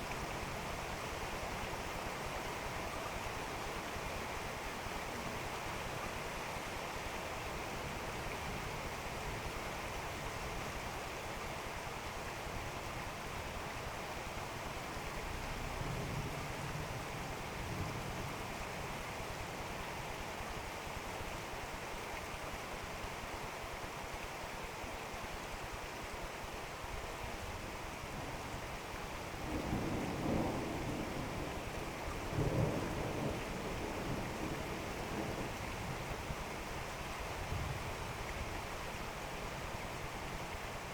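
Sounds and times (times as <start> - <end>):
heavy rain falling: 27.8 - 40.9
distant thunder rumble: 29.4 - 36.0.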